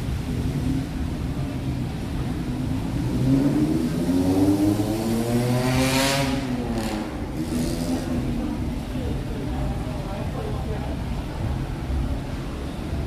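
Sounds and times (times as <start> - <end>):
vehicle engine passing: 2.2 - 8.6.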